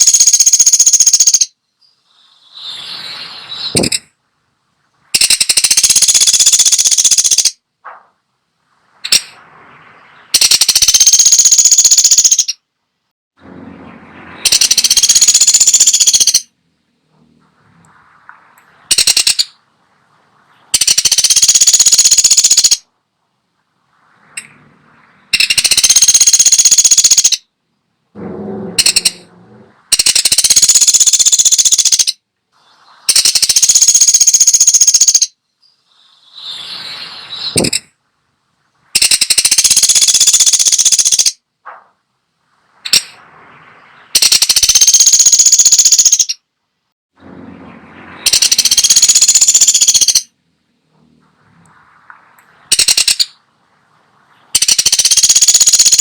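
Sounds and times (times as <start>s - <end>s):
woodpecker rattling calls: 0.0s - 2.3s, 3.6s - 4.1s, 5.2s - 8.0s, 9.0s - 9.4s, 10.2s - 12.6s, 14.4s - 16.6s, 18.7s - 19.6s, 20.7s - 22.9s, 25.2s - 27.5s, 28.3s - 32.2s, 33.1s - 36.6s, 37.4s - 37.9s, 38.9s - 41.4s, 42.8s - 43.2s, 43.9s - 46.4s, 48.2s - 50.3s, 52.7s - 53.4s, 54.4s - 56.0s.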